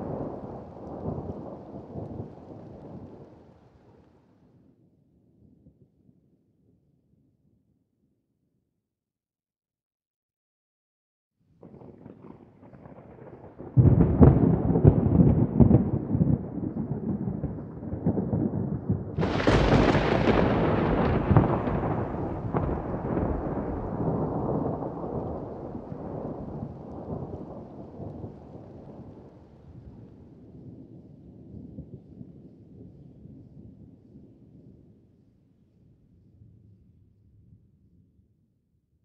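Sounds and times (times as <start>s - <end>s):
thunder rumbling and cracking: 0.0s - 4.0s, 11.6s - 32.9s.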